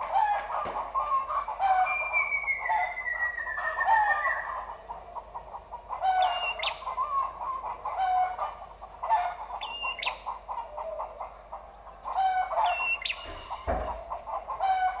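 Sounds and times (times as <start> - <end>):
bird chirping and whistling: 1.8 - 4.6, 6.2 - 6.8, 12.7 - 13.6
low thump: 13.2 - 14.2.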